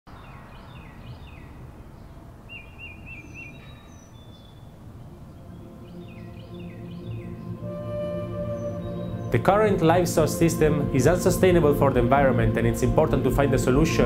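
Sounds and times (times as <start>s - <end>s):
small birds chirping: 0.1s - 7.7s, 8.4s - 11.2s
soft music: 4.7s - 14.0s.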